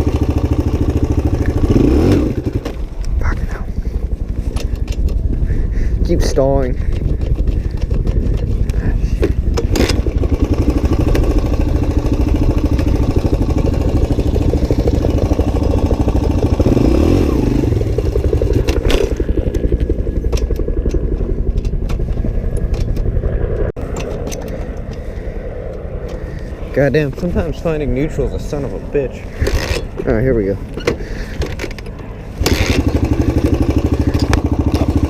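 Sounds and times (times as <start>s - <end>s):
motorcycle engine running unevenly: 0.0s - 23.6s, 32.4s - 35.0s.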